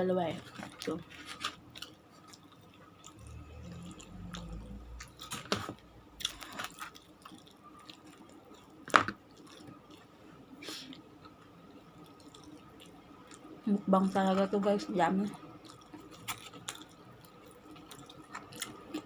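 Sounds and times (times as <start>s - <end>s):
chewing and biting food: 0.3s - 10.2s, 10.9s - 14.6s, 15.3s - 19.0s
low rumble: 3.2s - 6.1s.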